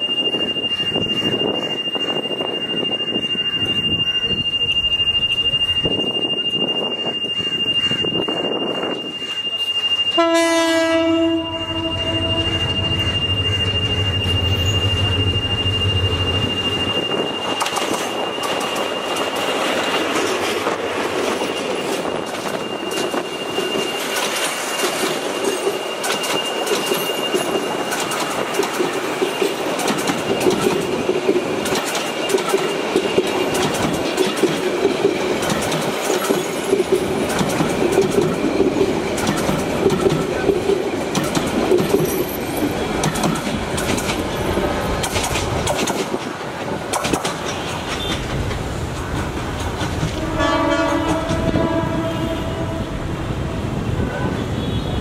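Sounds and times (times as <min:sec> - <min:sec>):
locomotive engine rumbling: 0:00.0 - 0:54.6
wheels clicking over rail joints: 0:17.4 - 0:51.8.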